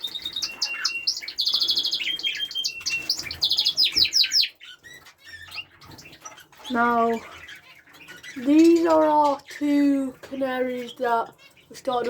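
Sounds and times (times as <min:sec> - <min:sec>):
small cage birds chirping: 0:00.0 - 0:12.0.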